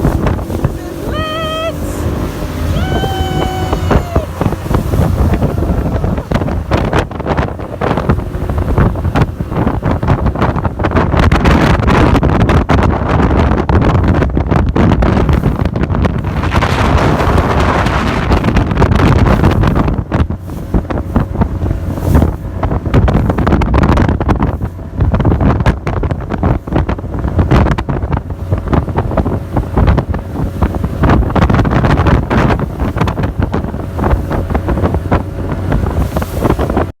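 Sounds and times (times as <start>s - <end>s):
wind buffeting the microphone: 0.0s - 37.0s.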